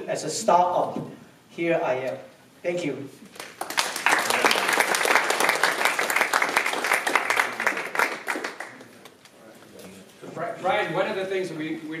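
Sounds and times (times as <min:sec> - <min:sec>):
audience applauding: 0:03.3 - 0:09.0.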